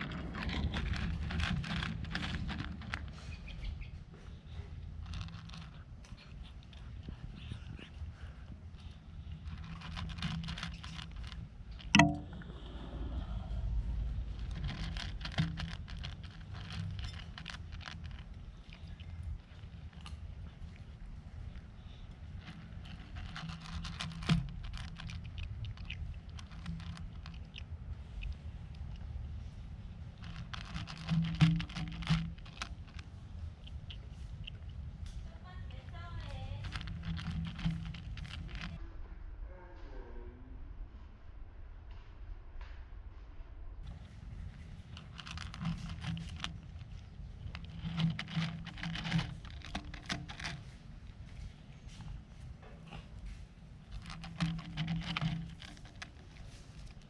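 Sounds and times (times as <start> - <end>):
cat chewing food: 0.0 - 38.8, 43.8 - 57.0.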